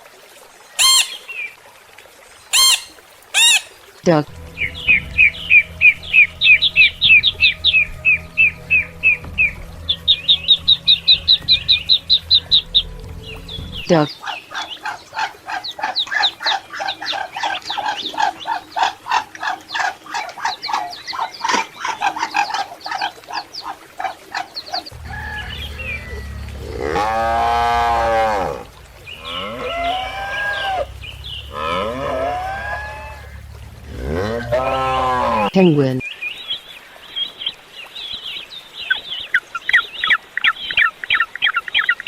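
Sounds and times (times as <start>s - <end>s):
ducks quacking: 2.5s - 35.6s
long rising and falling animal calls: 2.6s - 15.6s, 24.9s - 35.6s
steady low background: 4.2s - 14.1s, 24.9s - 35.5s.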